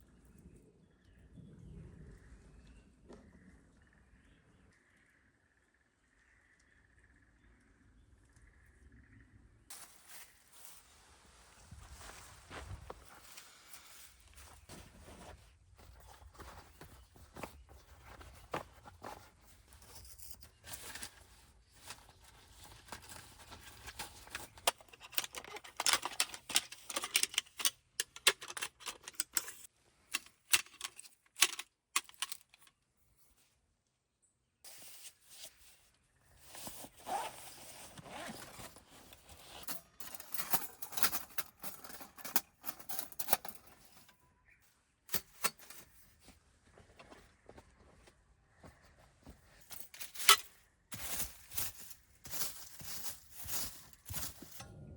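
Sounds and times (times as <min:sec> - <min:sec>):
food packages rustling: 0:09.7 - 0:32.7, 0:49.5 - 0:54.6.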